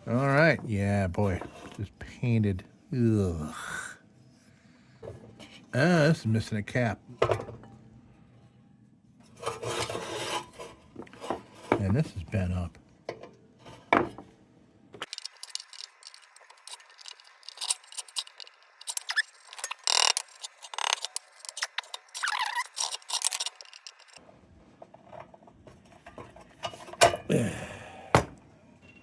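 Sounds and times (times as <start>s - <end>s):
small metal parts clinking: 15.0s - 24.2s.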